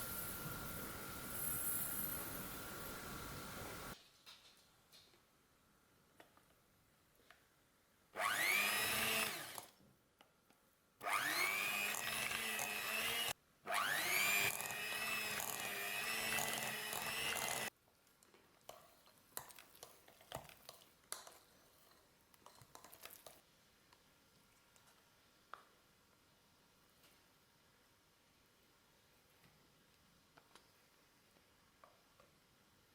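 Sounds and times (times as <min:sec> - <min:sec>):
kitchen appliance motor whining: 0:08.2 - 0:09.7, 0:11.0 - 0:17.7.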